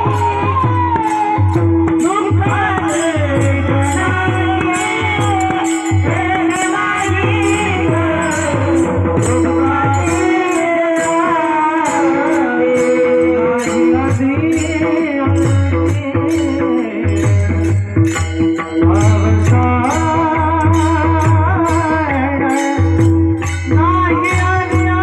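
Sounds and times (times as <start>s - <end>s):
person singing devotional melody: 0.0s - 25.0s
small hand cymbals: 0.0s - 25.0s
low drum beat: 12.8s - 25.0s.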